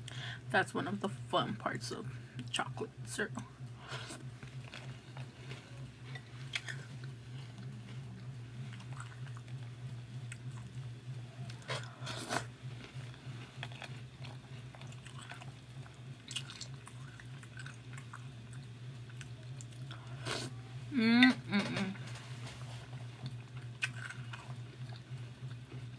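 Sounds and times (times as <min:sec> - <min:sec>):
steady low hum: 0:00.0 - 0:25.9
chewing and crunching cereal: 0:03.3 - 0:20.6, 0:22.0 - 0:25.9.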